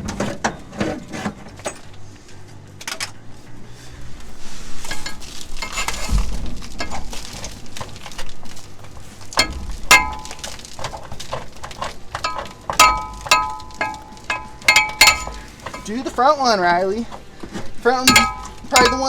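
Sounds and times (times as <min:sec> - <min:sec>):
metal tools scraping: 0:04.7 - 0:08.1, 0:09.4 - 0:19.0
metal tools clinking: 0:04.9 - 0:06.2, 0:09.4 - 0:16.4, 0:17.9 - 0:19.0.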